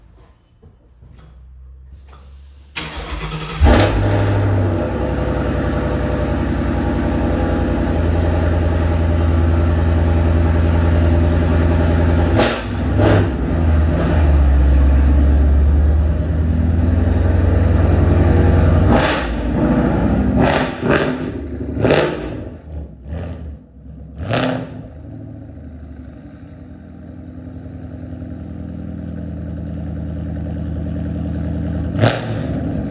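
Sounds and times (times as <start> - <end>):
car engine cranking: 2.0 - 5.4
car engine revving and idling: 2.8 - 32.9.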